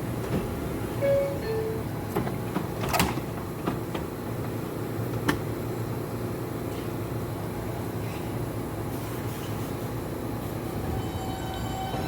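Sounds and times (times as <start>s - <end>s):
train doors sliding shut: 0.0s - 5.5s, 8.9s - 12.0s
train equipment hum: 0.0s - 12.0s
two-tone descending door chime: 1.0s - 1.9s.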